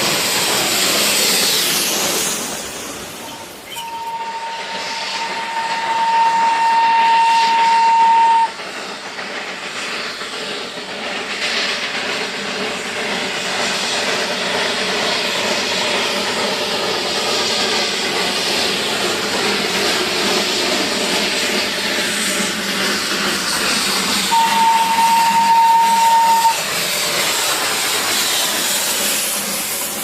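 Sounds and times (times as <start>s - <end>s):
train running hiss: 0.0s - 30.0s
train whistle: 3.2s - 8.6s, 24.3s - 26.7s.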